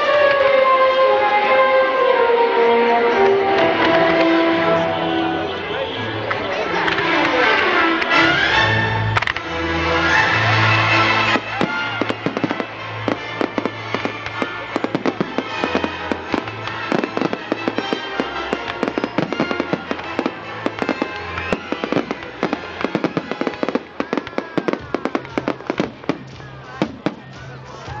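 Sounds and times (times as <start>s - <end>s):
music playing: 0.0s - 28.0s
fireworks crackling and popping: 9.2s - 27.7s.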